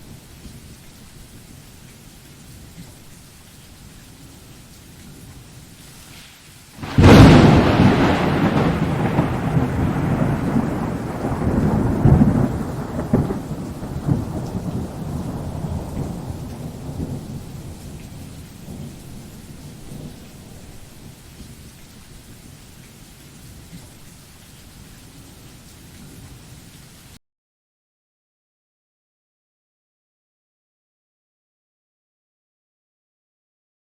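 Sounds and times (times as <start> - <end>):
rain hissing: 0.0 - 27.2
thunder rumbling: 6.8 - 21.7.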